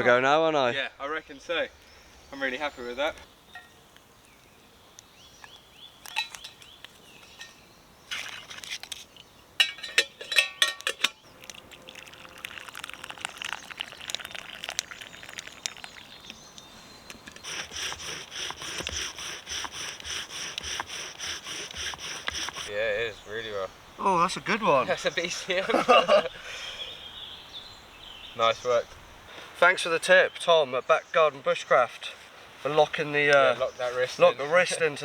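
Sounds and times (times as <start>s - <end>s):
wooden spindle grinding and squeaking: 17.1s - 22.8s.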